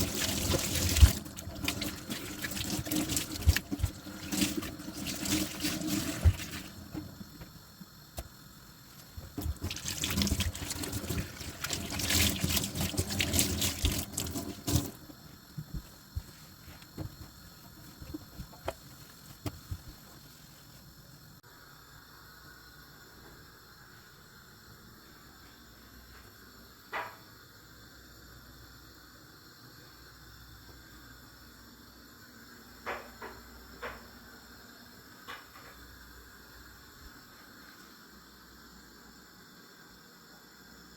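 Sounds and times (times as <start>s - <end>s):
tap water running into sink: 0.0s - 7.5s, 9.0s - 16.3s.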